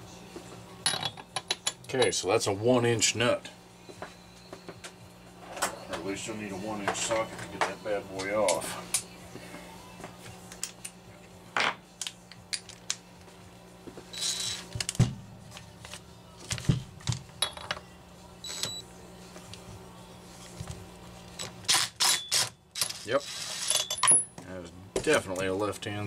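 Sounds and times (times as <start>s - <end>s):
metal tools clinking: 22.8s - 24.4s.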